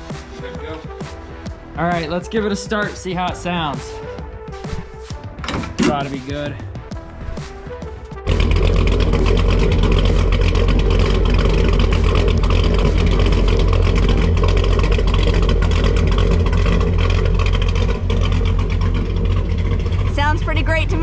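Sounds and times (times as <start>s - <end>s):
vee eight engine running: 8.2s - 21.0s.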